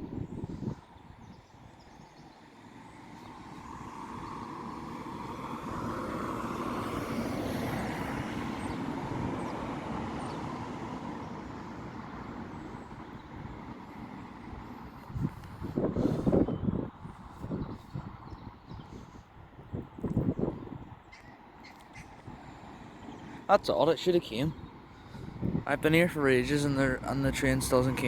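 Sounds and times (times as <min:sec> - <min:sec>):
vehicle passing: 0:02.7 - 0:16.4, 0:22.0 - 0:28.0.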